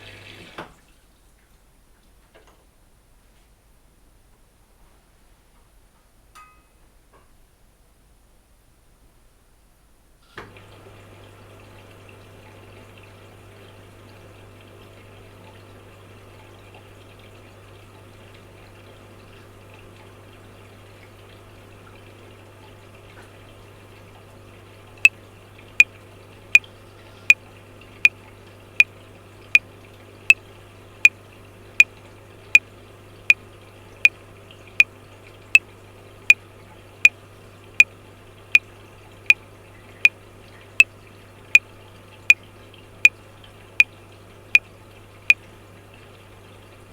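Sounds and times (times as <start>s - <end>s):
washing machine humming: 0.0s - 0.9s, 10.4s - 46.9s.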